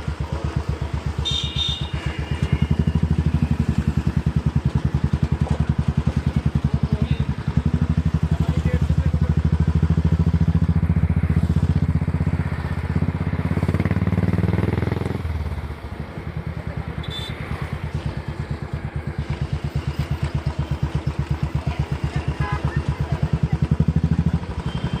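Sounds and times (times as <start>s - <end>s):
motorcycle engine thumping: 2.4s - 8.4s.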